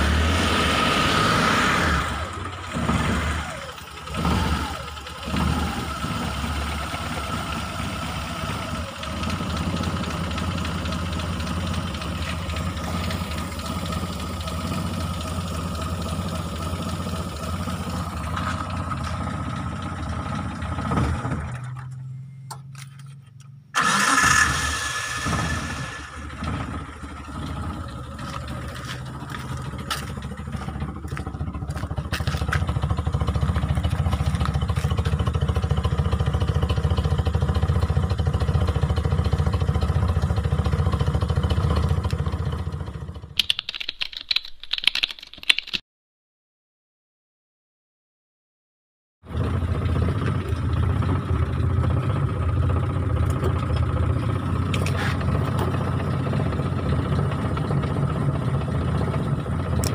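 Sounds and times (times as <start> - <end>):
engine starting with loud burst: 0.0 - 9.9, 23.8 - 28.6
engine running: 0.0 - 43.5, 49.2 - 59.9.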